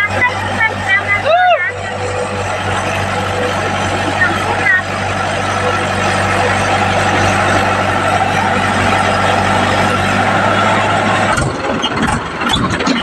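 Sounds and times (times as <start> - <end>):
rough uneven engine sound: 0.0 - 13.0
tractor diesel engine running: 0.0 - 13.0.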